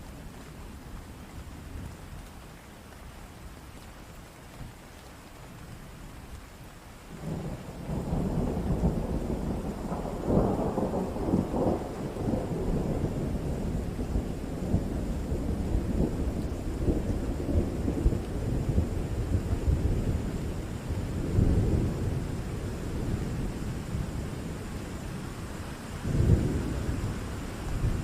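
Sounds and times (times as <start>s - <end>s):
steady rain: 0.0s - 28.0s
thunder rumbling: 7.2s - 28.0s.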